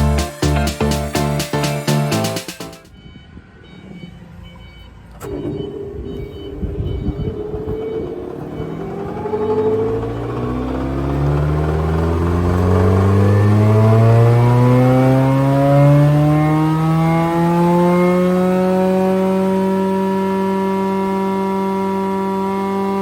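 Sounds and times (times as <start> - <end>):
planer motor humming: 5.8 - 18.8.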